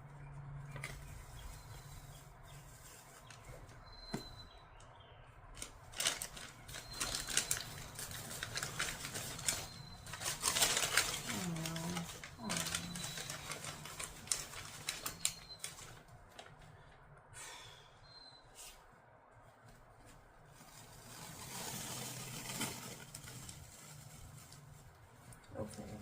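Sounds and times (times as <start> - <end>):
rustling of parts handled: 5.6 - 16.6.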